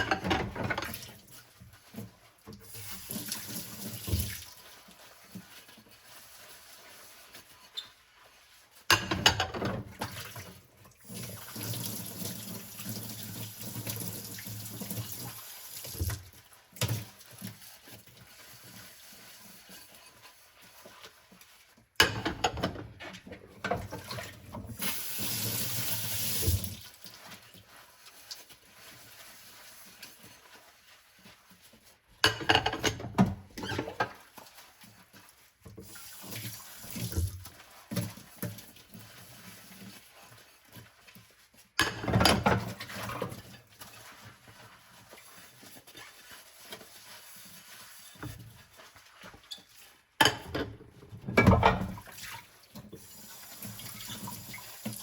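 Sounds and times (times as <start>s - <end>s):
dishes clattering and splashing: 0.0s - 5.8s, 8.8s - 18.7s, 20.7s - 25.9s, 32.1s - 41.0s, 41.6s - 55.0s
water running from tap: 0.4s - 7.4s, 9.6s - 20.0s, 23.8s - 30.6s, 35.0s - 40.5s, 51.9s - 55.0s.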